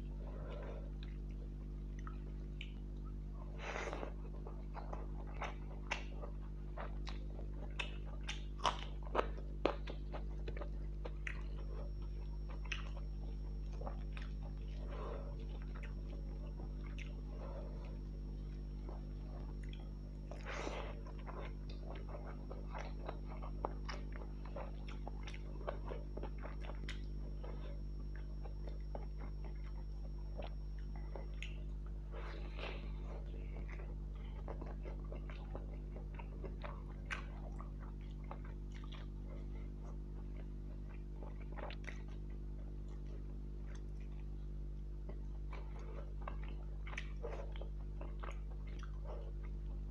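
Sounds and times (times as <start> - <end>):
person chewing food: 0.0 - 49.9
steady low hum: 0.0 - 49.9.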